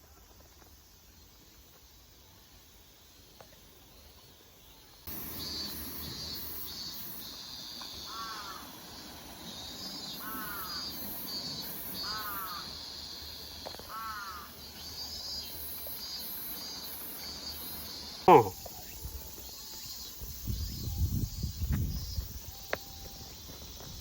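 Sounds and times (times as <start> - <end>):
high-pitched insect chorus: 0.0 - 24.0
bird short falling calls: 18.3 - 18.5.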